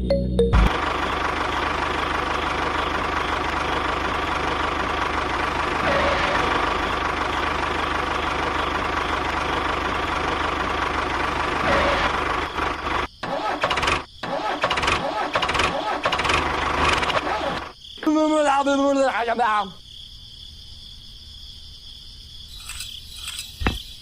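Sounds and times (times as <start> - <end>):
engine running steadily: 0.6 - 17.7.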